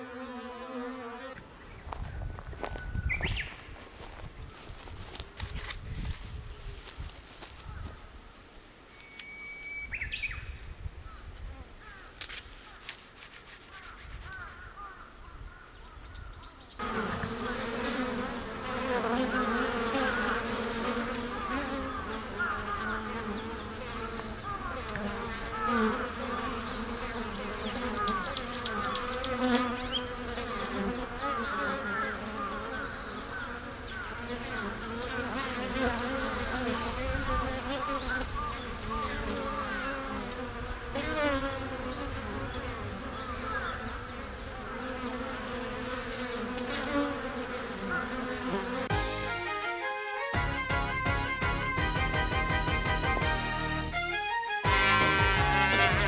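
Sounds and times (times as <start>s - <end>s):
bees buzzing: 0.0s - 1.9s, 16.8s - 56.0s.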